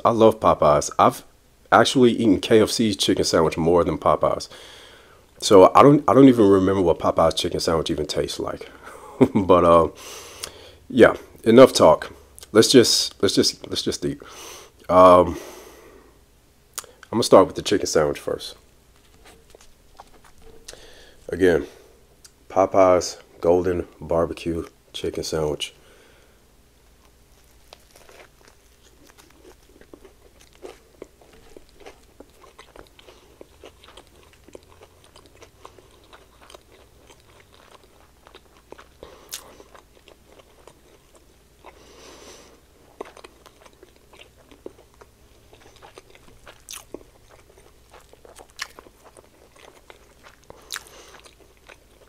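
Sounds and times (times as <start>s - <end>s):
crispy sandwich crunching: 18.9s - 21.5s, 26.9s - 41.8s, 42.8s - 52.0s.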